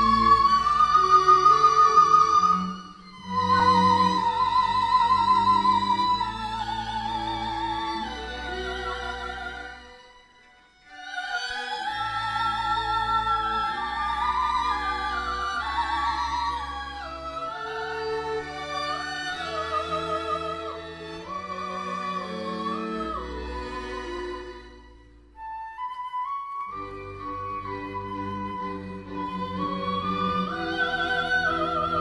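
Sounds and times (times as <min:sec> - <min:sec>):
choral and instrumental accompaniment: 0:00.0 - 0:25.9, 0:26.6 - 0:32.0
soprano singing with vibrato: 0:10.9 - 0:16.7, 0:29.2 - 0:32.0.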